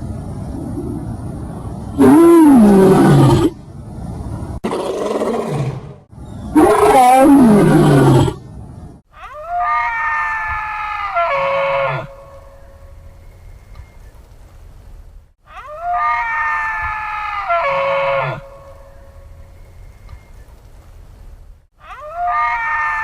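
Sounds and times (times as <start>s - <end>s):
large animal roaring: 2.0s - 3.6s, 4.6s - 8.4s.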